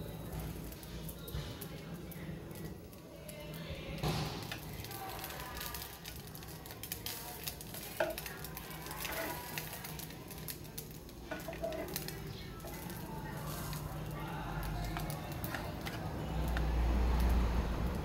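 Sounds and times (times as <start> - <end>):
radish cake sizzling in pan: 0.0 - 18.0
metal tongs scraping pan: 8.9 - 9.7, 11.3 - 13.8.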